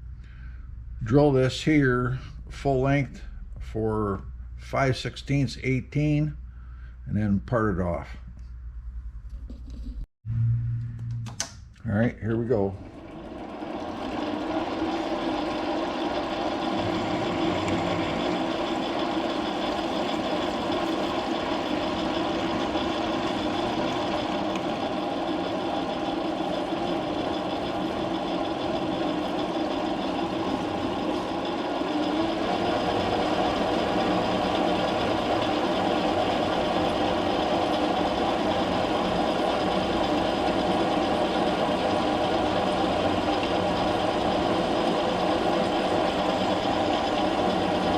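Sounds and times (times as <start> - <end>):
metal lathe drilling: 13.0 - 47.9.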